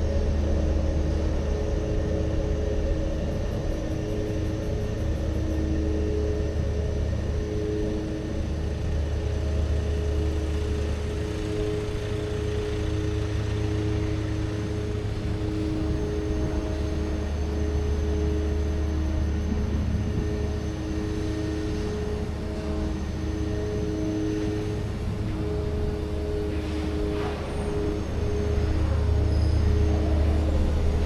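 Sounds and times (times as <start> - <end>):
humming tone: 0.0 - 31.0
low engine rumble: 6.6 - 20.6.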